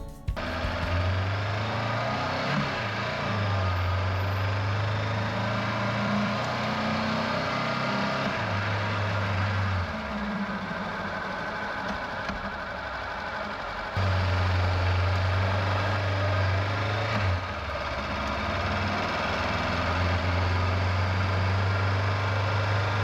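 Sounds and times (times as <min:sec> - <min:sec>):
motorcycle engine running: 0:00.0 - 0:01.1.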